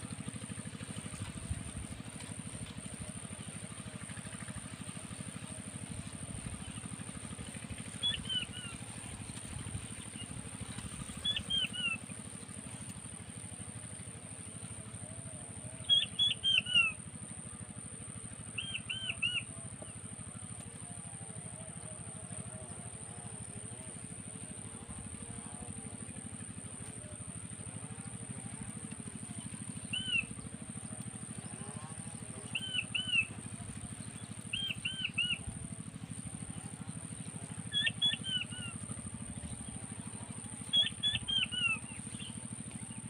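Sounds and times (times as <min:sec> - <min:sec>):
quail whistling calls: 0:08.0 - 0:08.8, 0:11.2 - 0:12.0, 0:15.8 - 0:17.0, 0:18.6 - 0:19.5, 0:29.8 - 0:30.4, 0:32.4 - 0:33.3, 0:34.2 - 0:35.5, 0:37.7 - 0:38.8, 0:40.7 - 0:42.3.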